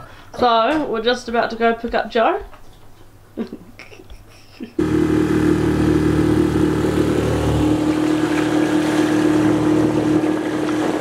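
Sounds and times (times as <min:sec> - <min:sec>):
boat engine droning: 0:04.8 - 0:11.0.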